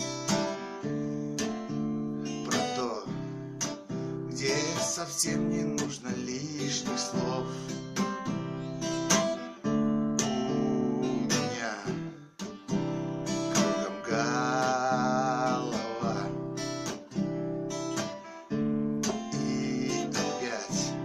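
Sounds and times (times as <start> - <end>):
acoustic guitar strumming: 0.0 - 21.0
man singing slow song: 2.3 - 3.5, 4.1 - 7.9, 10.0 - 12.3, 13.3 - 16.6, 19.0 - 21.0.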